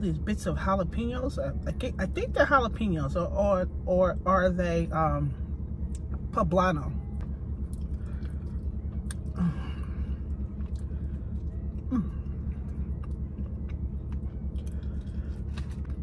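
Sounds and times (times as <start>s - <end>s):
steady low hum: 0.0s - 16.0s
person chewing crunchy food: 10.2s - 16.0s.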